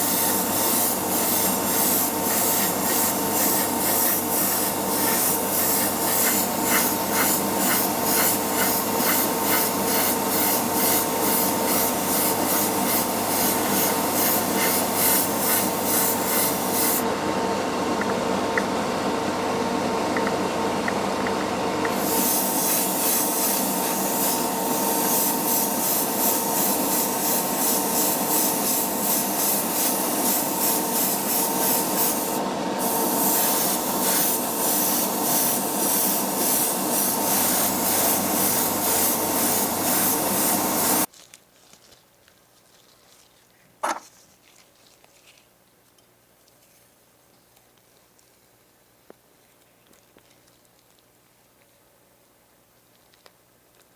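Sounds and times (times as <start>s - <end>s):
rhythmic abrasive rubbing strokes: 0.0s - 17.0s, 22.0s - 32.4s, 33.1s - 41.1s.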